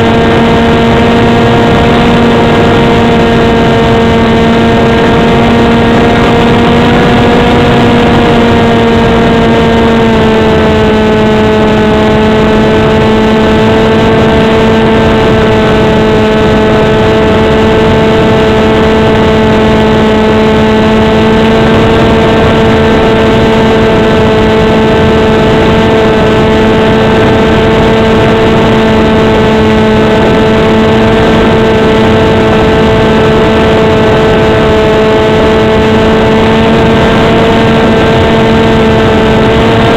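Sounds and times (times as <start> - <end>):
model plane motor buzzing: 0.0 - 39.9.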